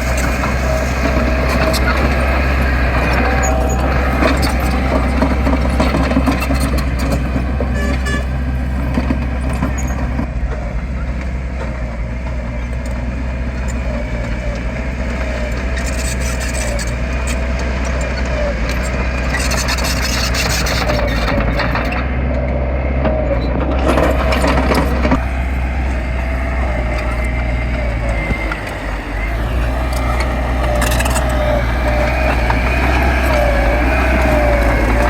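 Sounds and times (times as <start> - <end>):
scraping and clatter: 0.0 - 11.8, 13.6 - 35.0
diesel machinery running: 0.0 - 35.0
wavering whine: 23.4 - 35.0.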